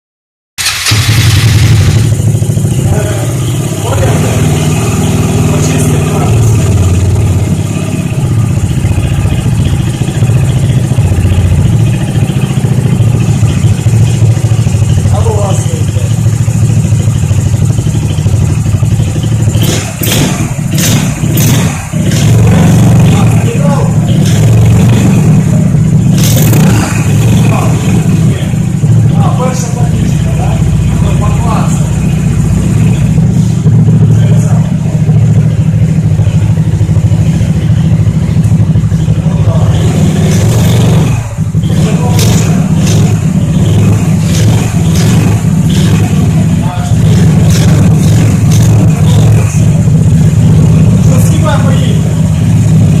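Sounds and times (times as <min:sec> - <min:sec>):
engine running: 0:00.6 - 0:53.0.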